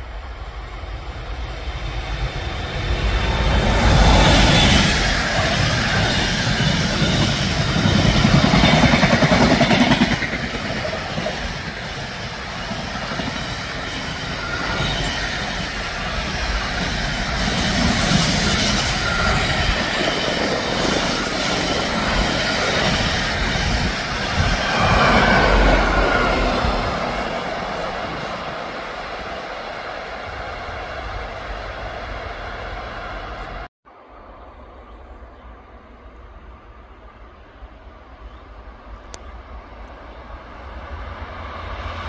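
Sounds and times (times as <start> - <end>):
train wheels squealing: 1.9 - 28.0
train wheels clattering on rails: 3.5 - 27.5.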